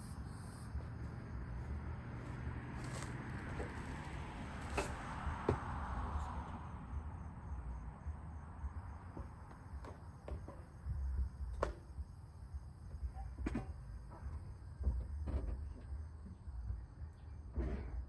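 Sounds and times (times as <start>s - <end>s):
high-pitched insect hum: 0.0s - 1.8s.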